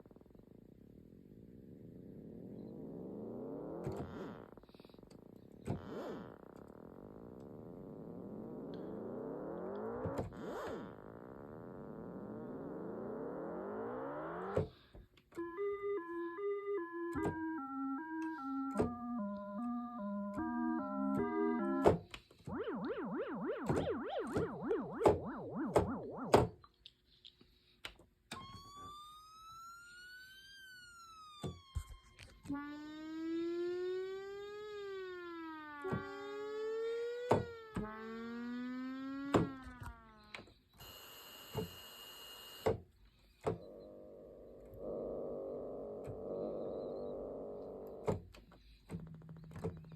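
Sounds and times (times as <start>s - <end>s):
synthesizer tone gliding upward: 11.1s - 14.6s, 15.4s - 21.9s, 22.5s - 26.6s, 32.3s - 40.2s, 43.6s - 48.1s
synthesizer short notes: 22.5s - 26.5s.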